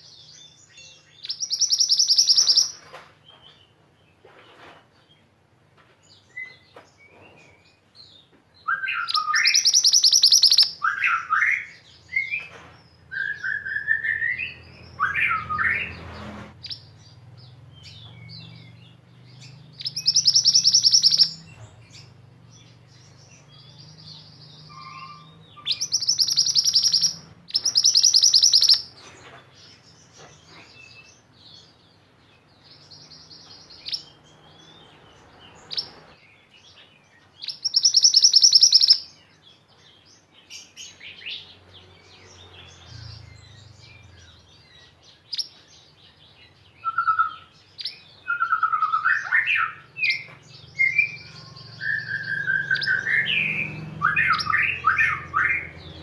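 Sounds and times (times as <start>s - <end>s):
sweeping whistled bird notes: 0.0s - 3.5s, 8.6s - 29.0s, 37.2s - 39.4s, 40.6s - 56.0s
short bird chirps: 1.2s - 3.5s, 19.4s - 22.1s, 23.4s - 29.2s
songbird rapid trills: 19.4s - 22.2s, 24.7s - 29.0s.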